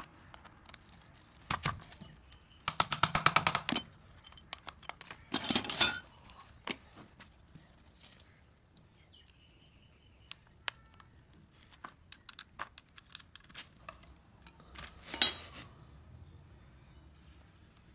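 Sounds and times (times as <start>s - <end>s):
metal tools clinking: 2.7s - 6.8s, 14.9s - 15.7s.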